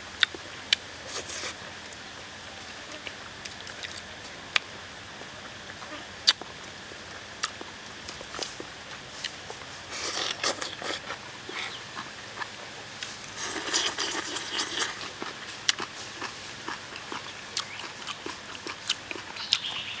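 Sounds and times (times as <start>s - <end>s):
crunchy chewing: 0.2s - 2.0s, 2.9s - 5.3s, 6.0s - 20.0s
wet chewing and mouth clicks: 3.4s - 4.6s, 7.4s - 19.9s.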